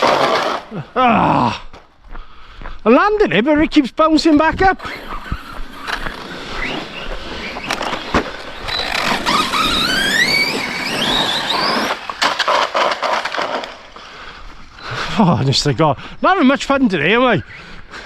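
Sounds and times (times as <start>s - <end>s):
electric motor whining: 4.8s - 12.2s.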